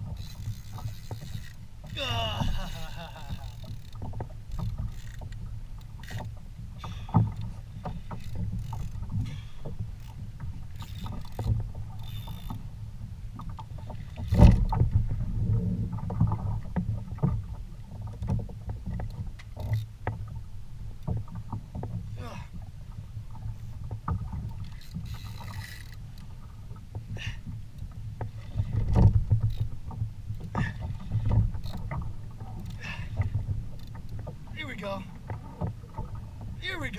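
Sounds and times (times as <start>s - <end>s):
knocks and clicks from boat: 0.0s - 36.9s
water against boat hull: 0.0s - 36.9s
thump on boat: 14.3s - 16.4s.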